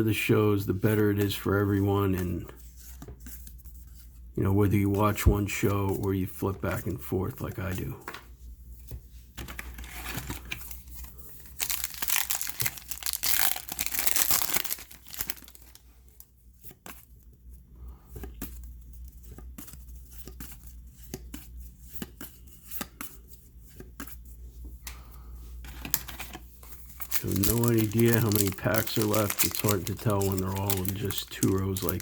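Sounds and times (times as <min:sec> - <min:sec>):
low steady hum: 0:00.0 - 0:32.0
cards clicking and rustling: 0:09.4 - 0:15.8, 0:25.7 - 0:32.0
wrapper tearing and crinkling: 0:11.5 - 0:15.8, 0:27.0 - 0:32.0.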